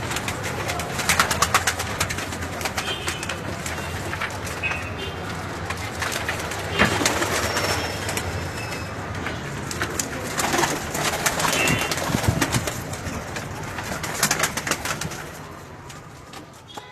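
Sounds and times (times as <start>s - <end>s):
clicks and rustles: 0.0s - 16.9s
pigeons cooing: 9.9s - 15.4s.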